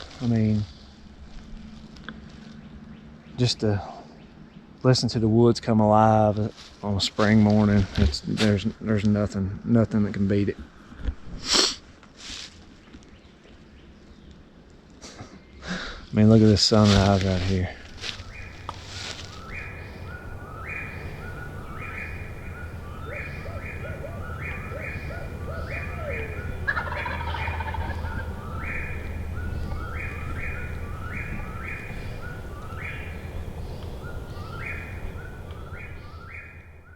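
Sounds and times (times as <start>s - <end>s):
steady low hum: 13.0s - 36.9s
turkey gobbling: 17.8s - 36.7s.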